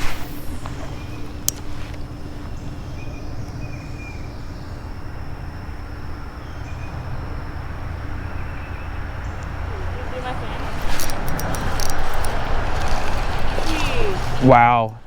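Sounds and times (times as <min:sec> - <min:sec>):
faint bird chirps: 0:00.0 - 0:11.1
wind: 0:00.0 - 0:15.0
flowing creek water: 0:07.6 - 0:15.0.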